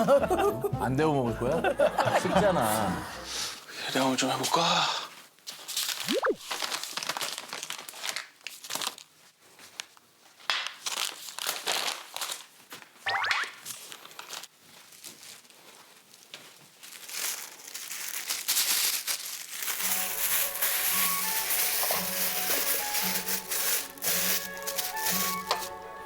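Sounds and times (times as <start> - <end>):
plastic packaging crinkling: 5.5 - 13.0, 13.8 - 25.8.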